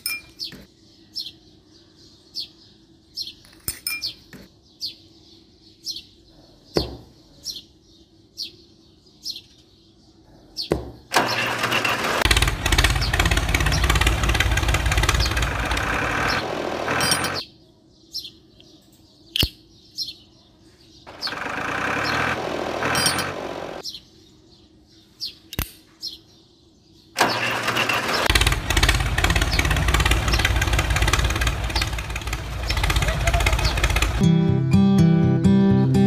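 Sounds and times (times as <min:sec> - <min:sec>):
birds chirping: 0:00.0 - 0:36.0
tractor engine running: 0:11.1 - 0:17.4, 0:21.1 - 0:23.8, 0:27.2 - 0:34.4
sharp clicks: 0:27.2 - 0:34.2.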